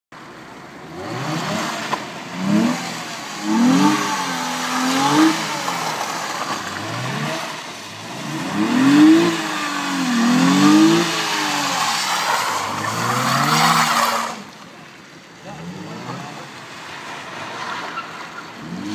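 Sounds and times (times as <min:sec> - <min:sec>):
car engine revving: 0:00.8 - 0:18.9.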